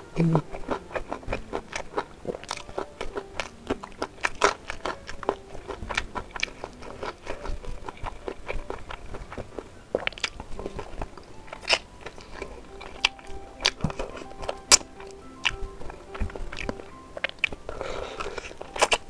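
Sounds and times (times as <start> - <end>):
person chewing with wet smacks: 0.0 - 19.0.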